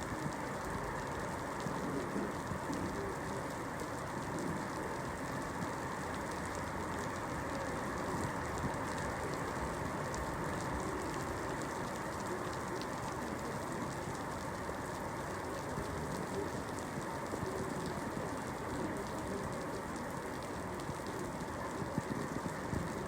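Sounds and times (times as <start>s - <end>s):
raindrops ticking: 0.0s - 23.0s
steady rainfall: 0.0s - 23.0s.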